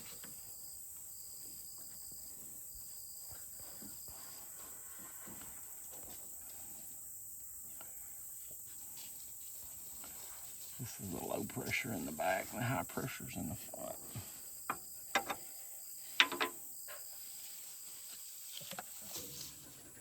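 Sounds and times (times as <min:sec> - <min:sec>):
insects shrilling: 0:10.1 - 0:14.6.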